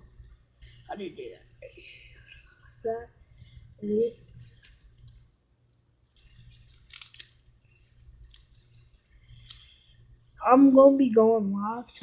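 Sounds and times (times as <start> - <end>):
small clicks and pops: 4.5 - 9.8.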